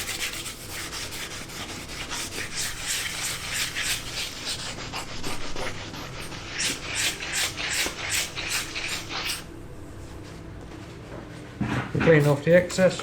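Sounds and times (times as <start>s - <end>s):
sandpaper rubbing: 0.0s - 9.4s.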